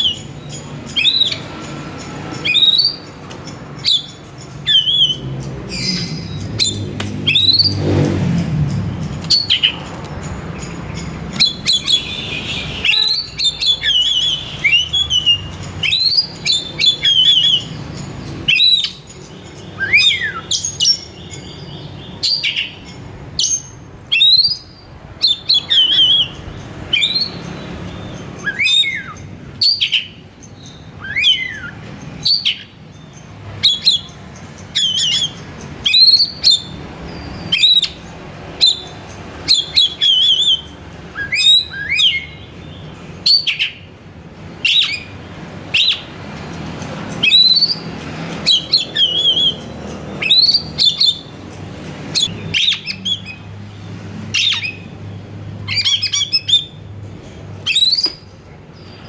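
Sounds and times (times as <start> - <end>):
bird singing whistled phrases: 0.0 - 1.6, 3.8 - 7.9, 11.4 - 17.8, 18.5 - 19.1, 28.0 - 32.7, 39.5 - 42.4, 44.6 - 45.1, 48.4 - 51.3, 57.6 - 59.0.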